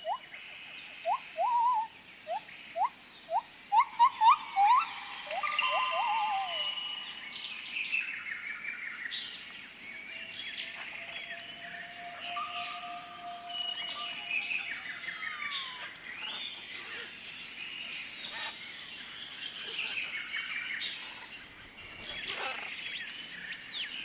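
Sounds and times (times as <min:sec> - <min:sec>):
birds chirping and twittering: 0:00.0 - 0:24.0
bird whistling rising notes: 0:02.8 - 0:08.3, 0:10.6 - 0:15.9.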